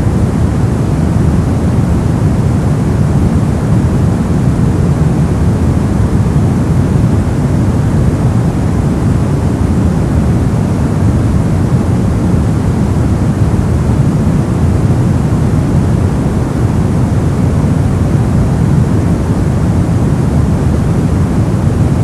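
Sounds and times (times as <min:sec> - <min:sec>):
brown noise rumbling hiss: 0:00.0 - 0:22.0.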